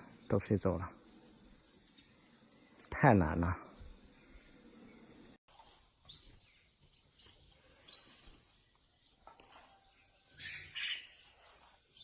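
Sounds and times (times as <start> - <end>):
birds chirping: 0.0 - 12.0
outdoor background hiss: 0.0 - 12.0
louder bird call: 10.4 - 11.2.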